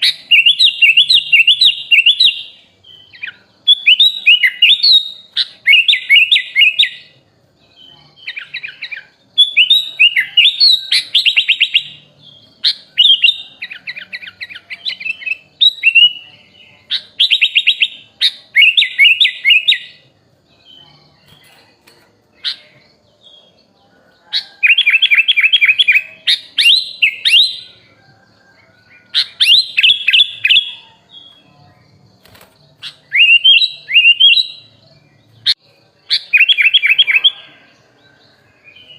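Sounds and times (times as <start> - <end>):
bird singing chattering whistles: 0.0 - 7.2, 8.1 - 20.0, 24.3 - 27.9, 28.9 - 31.4, 32.6 - 37.6.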